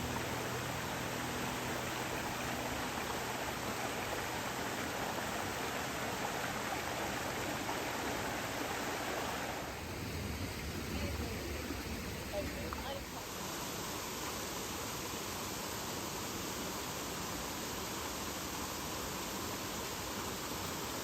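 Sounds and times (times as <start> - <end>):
waterfall rushing: 0.0 - 14.6.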